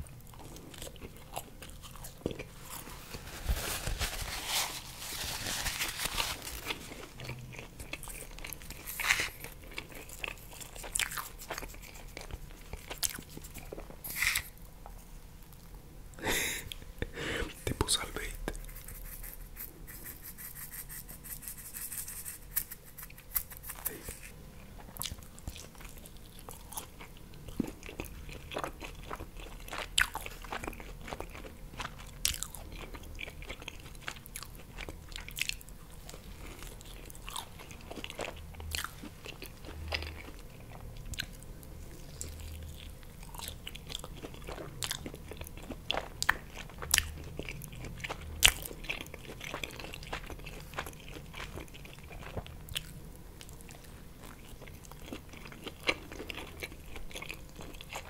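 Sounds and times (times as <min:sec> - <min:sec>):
crunchy chewing of pizza: 0:00.0 - 0:15.7, 0:21.5 - 0:58.0.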